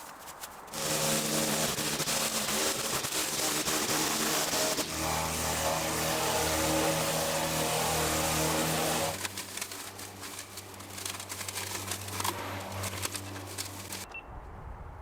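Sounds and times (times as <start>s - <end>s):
light ticks and rustles: 0.0s - 0.7s
engine-like drone: 0.7s - 14.1s.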